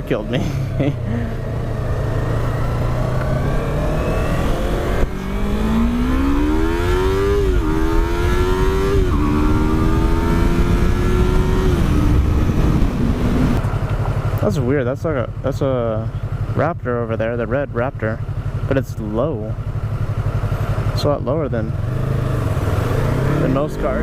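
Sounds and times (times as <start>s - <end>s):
low wind rumble: 0.0s - 18.7s, 19.3s - 24.0s
motorcycle engine accelerating: 0.0s - 24.0s
gear upshifts: 0.2s - 14.0s.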